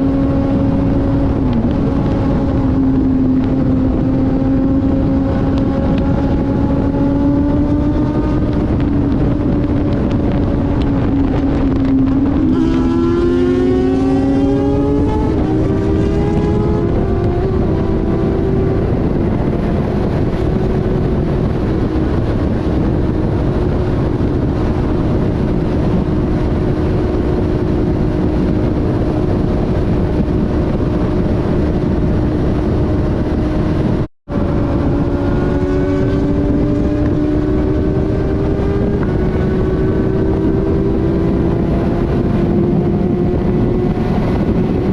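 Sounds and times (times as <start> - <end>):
motorcycle engines cruising: 0.0 - 44.9
wind buffeting microphone: 0.0 - 44.9.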